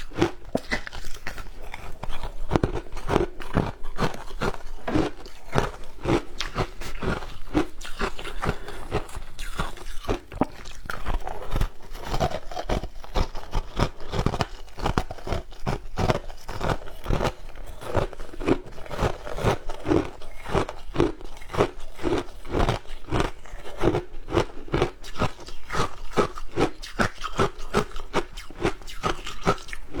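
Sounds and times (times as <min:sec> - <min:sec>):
person crunching ice: 0:00.0 - 0:23.6.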